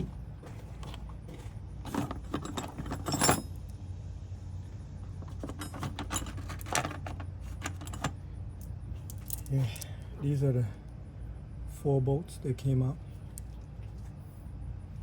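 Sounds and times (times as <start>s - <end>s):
steel bolts clinking: 1.8s - 3.7s.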